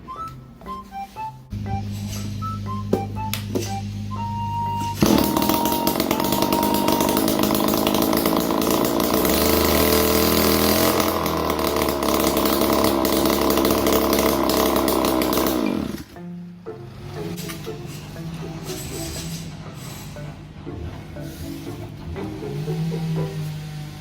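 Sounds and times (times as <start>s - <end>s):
brush cutter two-stroke engine running: 1.6s - 16.2s, 22.1s - 24.0s.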